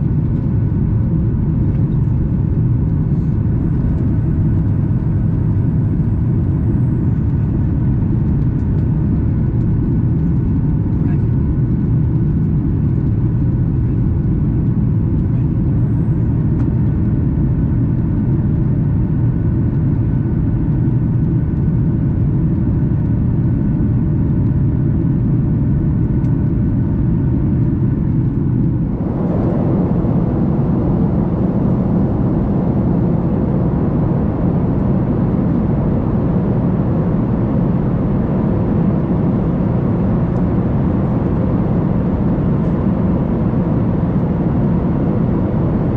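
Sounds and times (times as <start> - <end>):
airplane cabin rumble: 0.0 - 45.9
faint engine tones: 0.0 - 45.9.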